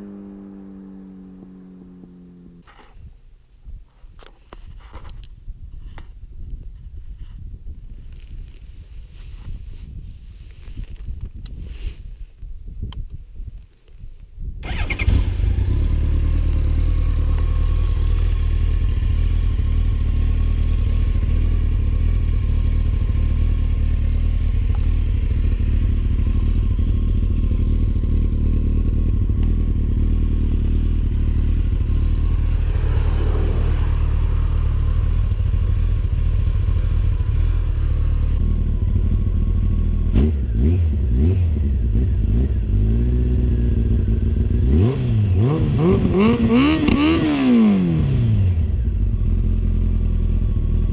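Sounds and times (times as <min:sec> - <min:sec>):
motorcycle engine idling: 0:00.0 - 0:02.6, 0:14.7 - 0:44.6, 0:48.6 - 0:50.9.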